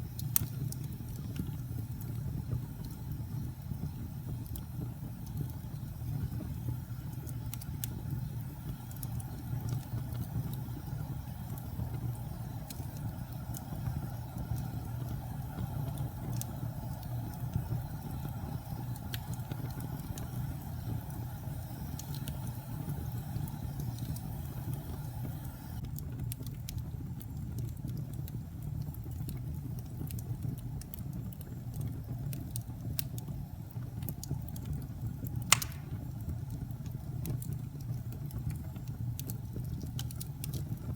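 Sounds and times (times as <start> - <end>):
fire crackling: 0.0 - 40.9
fire flames rumbling: 0.0 - 40.9
loud pop of fire: 35.4 - 36.4.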